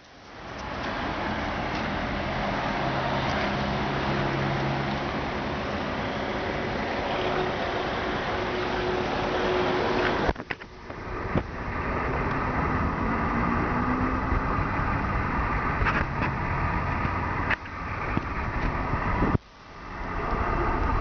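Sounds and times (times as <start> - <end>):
rushing vehicle and wind noise: 0.0 - 21.0.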